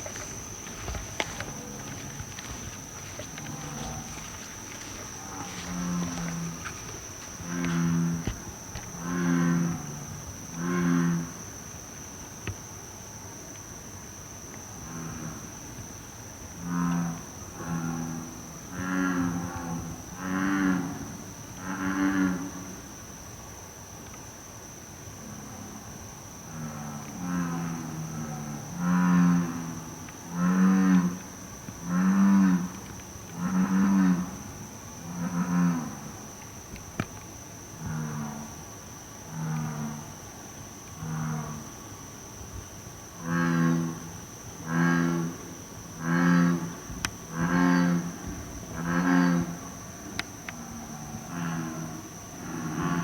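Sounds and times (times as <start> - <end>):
bullfrog croaking: 0.0 - 11.6, 16.5 - 22.8, 26.5 - 36.3, 37.8 - 40.2, 40.9 - 41.8, 43.2 - 53.0.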